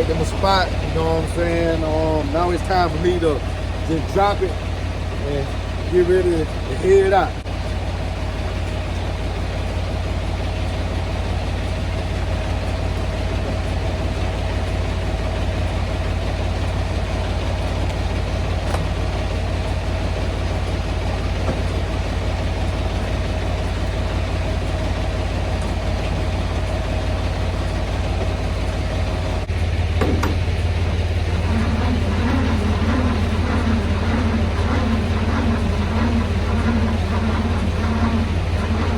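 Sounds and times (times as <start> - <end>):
diesel engine idling: 0.0 - 38.9
thin steady whine: 0.0 - 38.9
short knock: 30.0 - 30.4.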